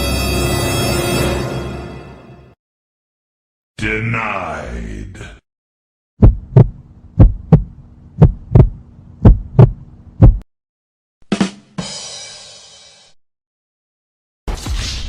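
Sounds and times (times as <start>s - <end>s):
heartbeat thumps: 6.2s - 10.4s
faint steady hum: 6.7s - 10.4s.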